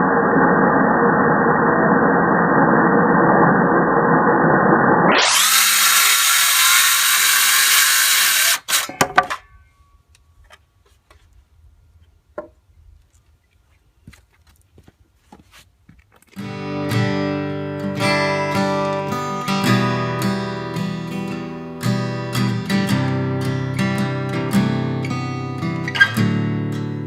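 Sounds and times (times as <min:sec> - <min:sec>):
circular saw cutting board: 0:05.0 - 0:09.7.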